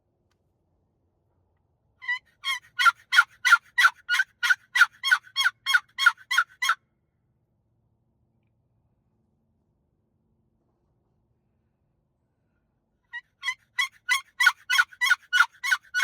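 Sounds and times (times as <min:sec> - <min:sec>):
turkey box call yelps: 0:02.0 - 0:06.8, 0:13.2 - 0:16.0.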